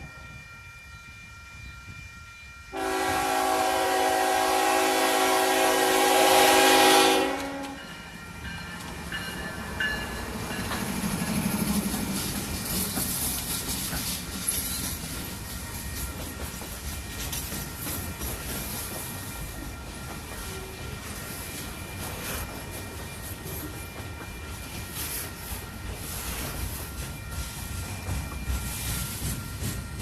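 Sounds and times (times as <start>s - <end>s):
train passing rumble: 0.0s - 30.0s
train horn blast: 2.7s - 7.9s
train wheel clicks: 8.4s - 30.0s.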